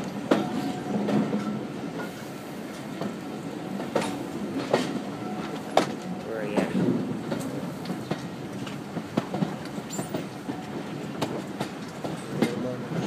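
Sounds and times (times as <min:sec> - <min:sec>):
train coach rumbling: 0:00.0 - 0:13.0
wheels clicking over rail joints: 0:03.8 - 0:13.0.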